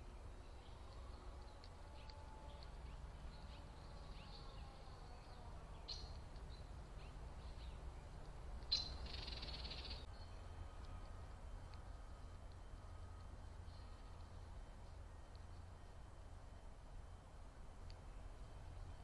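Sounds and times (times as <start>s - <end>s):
bird chirps: 0.0s - 11.1s
low steady rumble: 0.0s - 19.0s.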